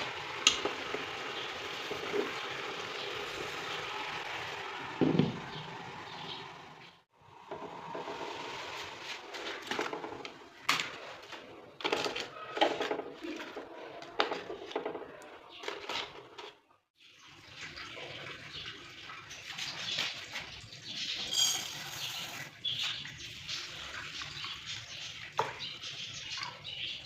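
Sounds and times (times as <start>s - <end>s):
dishes clinking: 21.2s - 22.0s.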